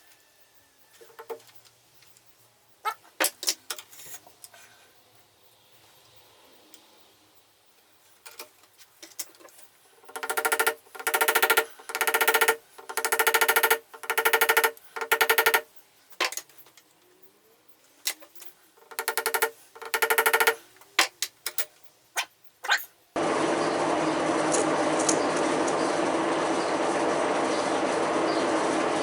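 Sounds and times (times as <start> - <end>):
sharp clicks: 10.0 - 15.7, 18.8 - 20.6.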